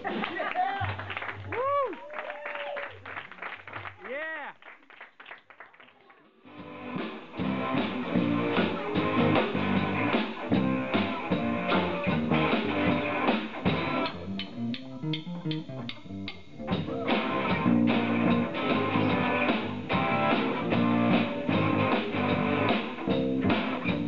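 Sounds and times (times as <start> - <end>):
rock band playing live: 6.5 - 24.0.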